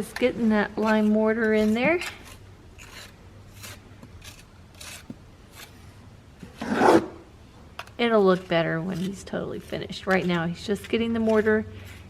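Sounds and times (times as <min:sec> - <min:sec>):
trowel scraping mortar: 0:00.2 - 0:05.8, 0:06.4 - 0:07.2, 0:07.8 - 0:12.0.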